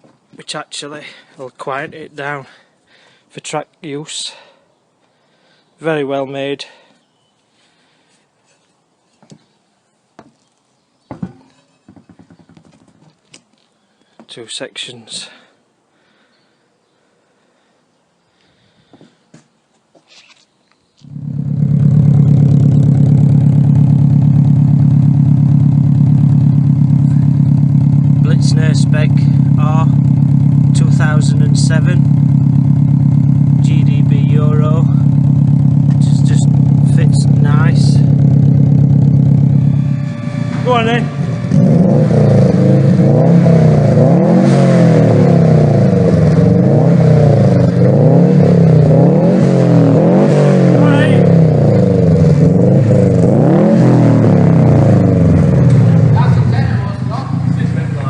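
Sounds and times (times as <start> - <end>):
car engine idling: 21.0 - 58.0.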